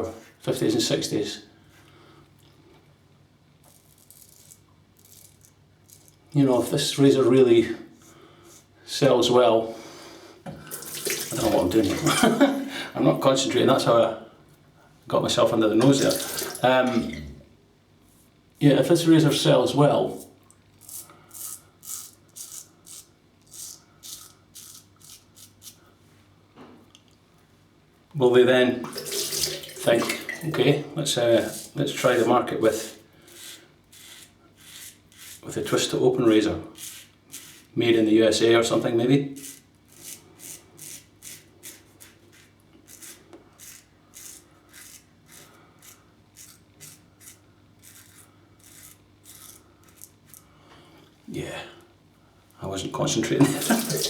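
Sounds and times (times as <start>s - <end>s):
razor scraping stubble: 20.8s - 25.8s, 31.2s - 38.0s, 39.4s - 50.5s.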